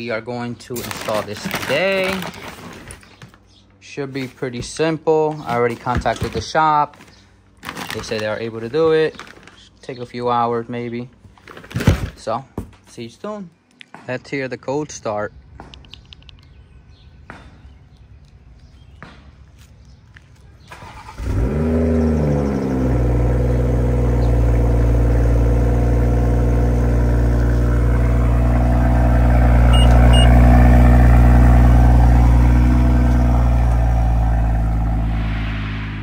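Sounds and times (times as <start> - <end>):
car engine starting and idling: 20.6 - 36.0.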